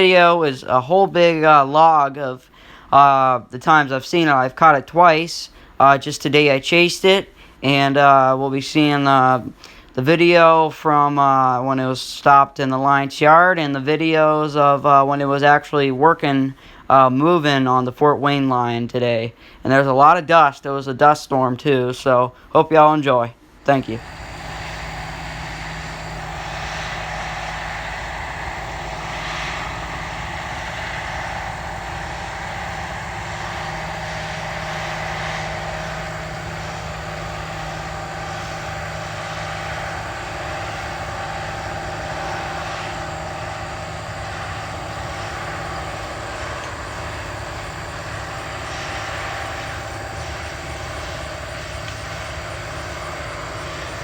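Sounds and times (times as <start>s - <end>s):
steady engine drone: 23.9s - 54.0s.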